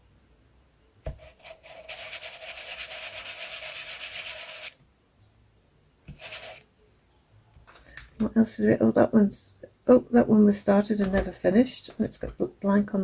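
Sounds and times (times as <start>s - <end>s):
scratchy rubbing on a surface: 1.2s - 4.8s, 6.1s - 6.6s.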